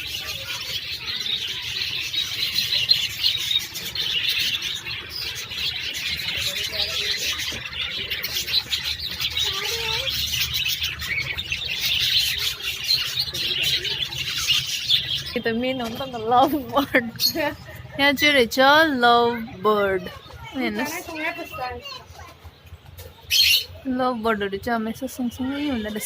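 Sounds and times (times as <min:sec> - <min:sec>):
low warbling bird calls: 0:00.0 - 0:22.0
lovebirds twittering: 0:00.0 - 0:26.0.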